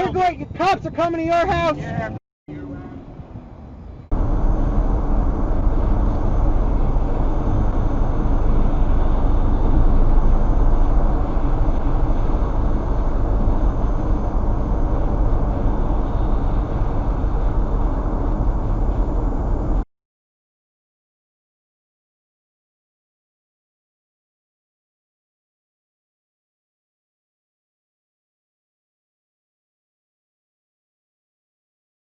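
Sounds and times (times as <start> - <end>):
car driving: 0.0 - 19.9.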